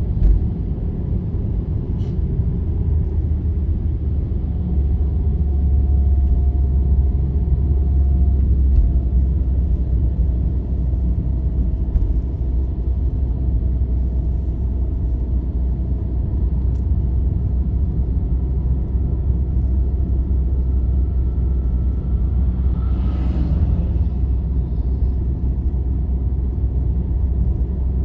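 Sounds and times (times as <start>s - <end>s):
vehicle rumbling on highway: 0.0s - 28.0s
faint whining tone: 20.5s - 26.0s.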